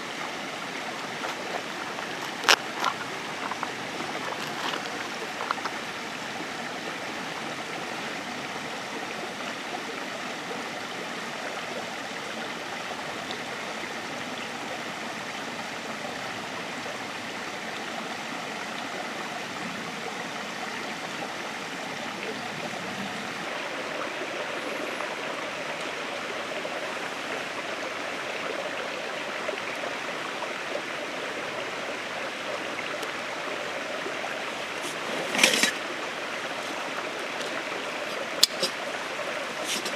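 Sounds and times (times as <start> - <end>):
steady rain falling: 0.0 - 27.9.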